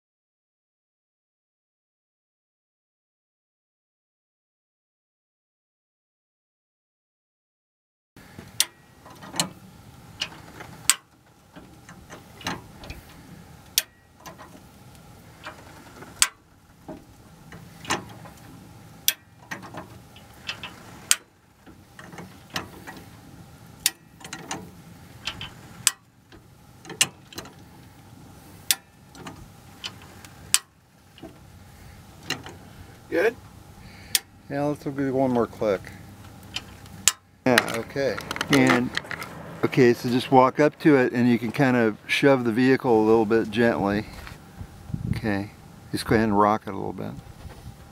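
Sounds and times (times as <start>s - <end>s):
jack clicking metallically: 8.5s - 43.8s.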